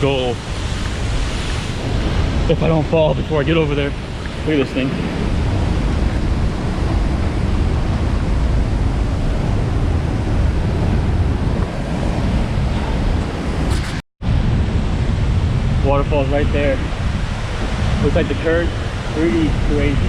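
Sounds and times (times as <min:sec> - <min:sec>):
waterfall rushing: 0:00.0 - 0:08.2
wind buffeting microphone: 0:00.0 - 0:20.0.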